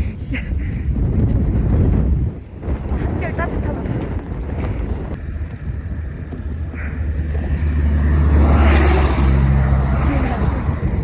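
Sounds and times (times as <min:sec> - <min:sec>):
wind rumbling on microphone: 0:00.0 - 0:11.0
vehicle driving past: 0:06.7 - 0:11.0.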